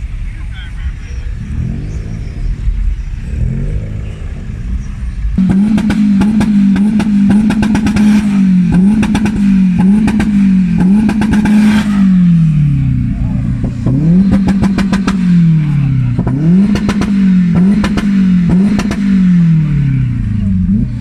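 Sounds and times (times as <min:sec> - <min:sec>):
car engine revving: 0:00.0 - 0:21.0
exhaust crackling pops: 0:05.4 - 0:12.1, 0:13.5 - 0:19.1.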